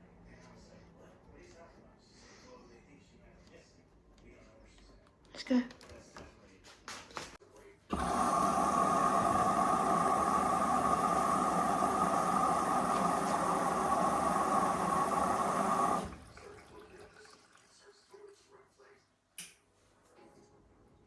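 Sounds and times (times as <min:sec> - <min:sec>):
washing machine whirring: 0:07.9 - 0:18.1
running water: 0:07.9 - 0:18.5.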